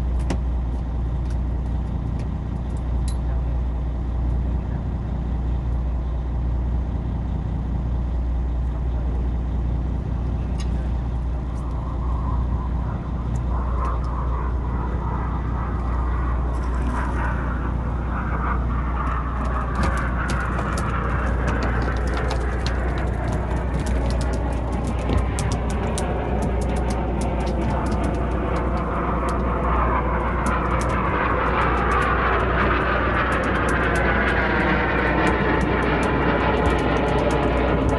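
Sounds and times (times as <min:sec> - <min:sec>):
boat engine humming: 0:00.0 - 0:37.9
rapid sharp clicks: 0:19.1 - 0:37.9.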